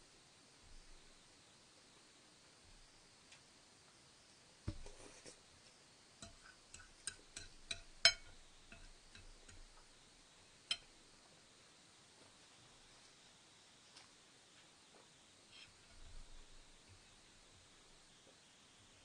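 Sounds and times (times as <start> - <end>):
soft thump: 4.7 - 5.0.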